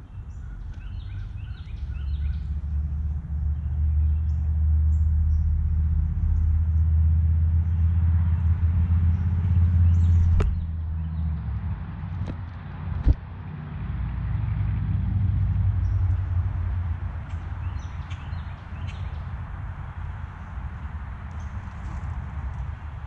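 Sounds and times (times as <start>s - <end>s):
small birds chirping: 0.0s - 6.6s, 17.2s - 20.6s
vehicle engine rumbling: 0.0s - 23.0s
sharp tap: 10.2s - 10.7s.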